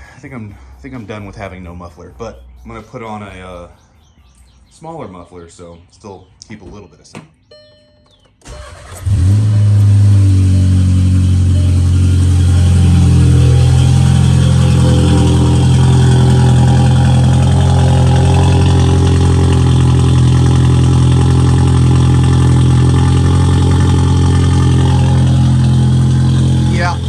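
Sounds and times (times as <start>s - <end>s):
car engine idling loudly: 8.5s - 27.0s.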